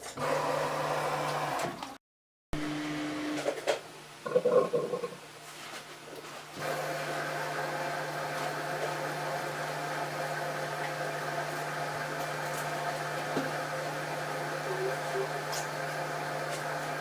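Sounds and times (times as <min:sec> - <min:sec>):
washing machine humming: 0:00.0 - 0:02.0, 0:02.6 - 0:17.0.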